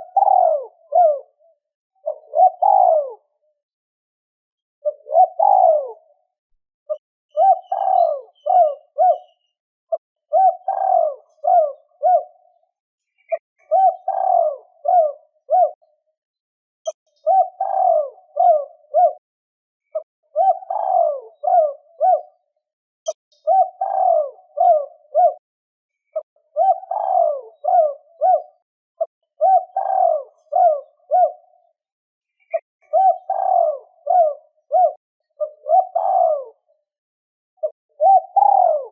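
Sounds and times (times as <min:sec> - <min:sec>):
dove cooing: 0:00.0 - 0:03.4, 0:04.8 - 0:06.2, 0:06.9 - 0:09.5, 0:10.3 - 0:12.6, 0:13.3 - 0:15.9, 0:17.2 - 0:19.2, 0:20.0 - 0:22.5, 0:23.4 - 0:25.4, 0:26.2 - 0:31.7, 0:32.5 - 0:36.7, 0:37.6 - 0:38.9.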